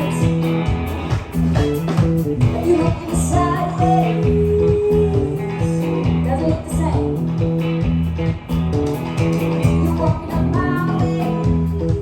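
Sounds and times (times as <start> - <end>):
live band playing: 0.0 - 12.0.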